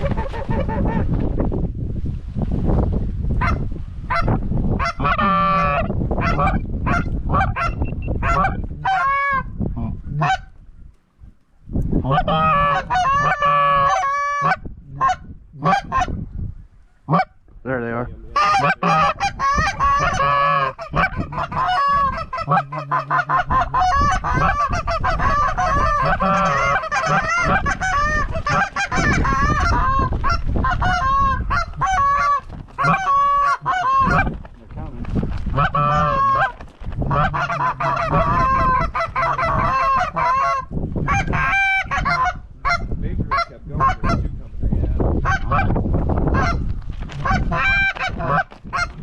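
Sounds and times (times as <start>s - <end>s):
goose honking: 3.4s - 9.5s, 12.0s - 16.2s, 18.3s - 34.3s, 35.5s - 44.2s, 45.2s - 45.7s, 46.3s - 46.6s, 47.2s - 49.0s.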